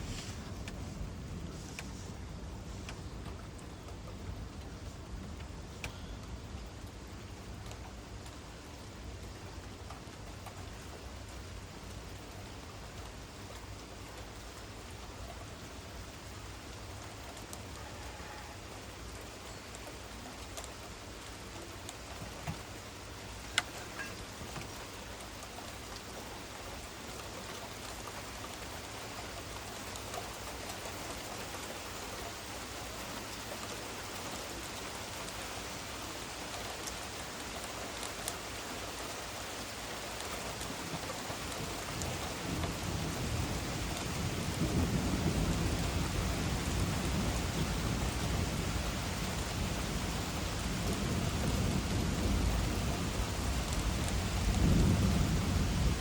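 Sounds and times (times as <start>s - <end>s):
heavy rain falling: 0.0s - 56.0s
thunder rumbling: 40.6s - 56.0s.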